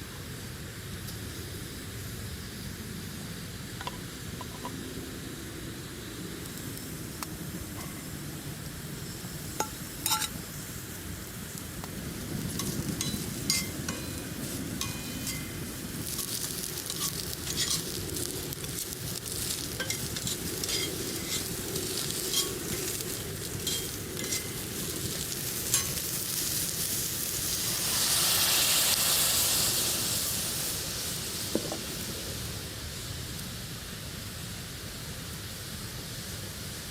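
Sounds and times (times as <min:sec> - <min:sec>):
food sizzling in a pan: 0:00.6 - 0:34.4
crackling pops: 0:11.5 - 0:27.4.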